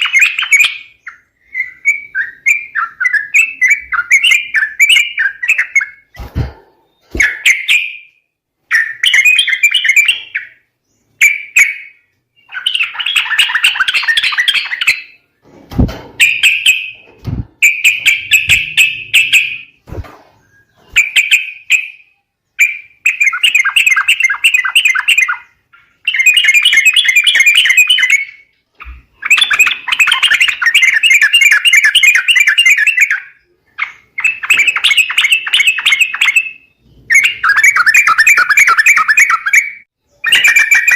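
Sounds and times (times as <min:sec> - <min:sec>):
soft low thumps: 0:17.2 - 0:17.6.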